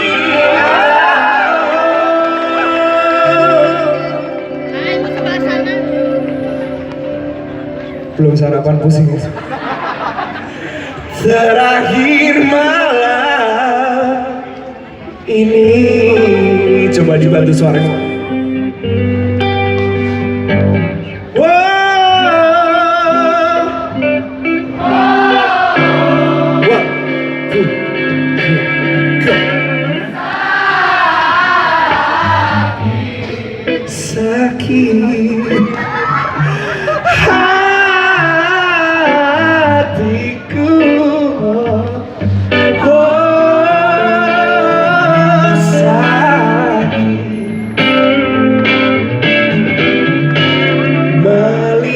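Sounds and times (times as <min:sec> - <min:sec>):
audience singing along: 0:00.0 - 0:04.4, 0:23.8 - 0:27.6, 0:29.8 - 0:34.6
person singing: 0:00.0 - 0:06.9, 0:24.8 - 0:29.8, 0:31.0 - 0:47.5, 0:50.5 - 0:51.9
live guitar band music: 0:00.0 - 0:51.9.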